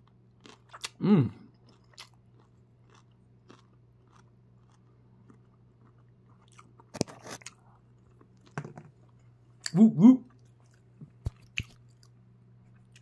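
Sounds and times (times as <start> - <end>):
person chewing food: 0.0 - 13.0
person humming mmm: 0.9 - 1.5, 9.7 - 10.3.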